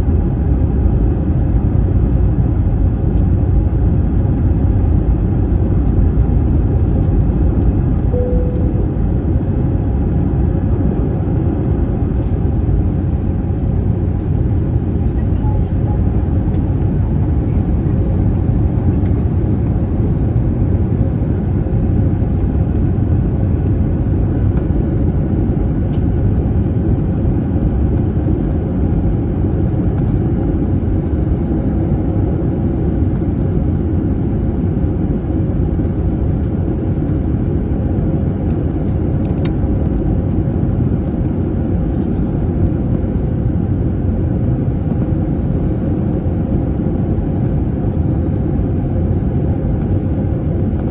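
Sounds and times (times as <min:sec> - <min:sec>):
faint steady hum: 0:00.0 - 0:22.4
airliner engine rumble in cabin: 0:00.0 - 0:50.9.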